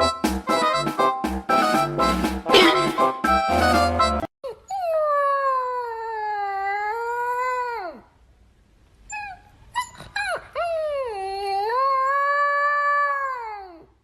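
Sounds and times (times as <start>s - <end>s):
dog yipping: 2.5s - 3.0s, 9.1s - 13.4s.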